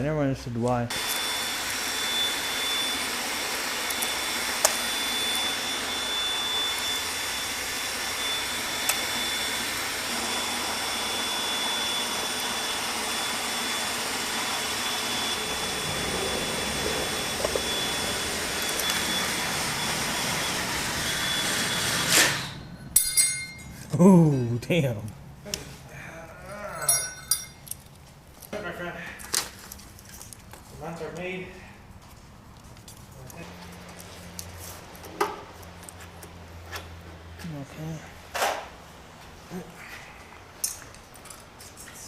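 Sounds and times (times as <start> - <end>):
thin high whine: 0.9 - 25.1
machine whooshing: 15.4 - 22.6.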